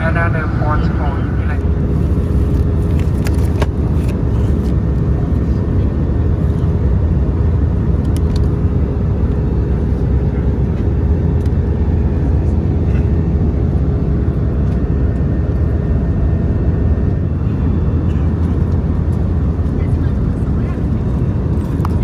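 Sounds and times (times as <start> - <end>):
faint steady hum: 0.0 - 3.3
aircraft engine and airflow noise: 0.0 - 22.0.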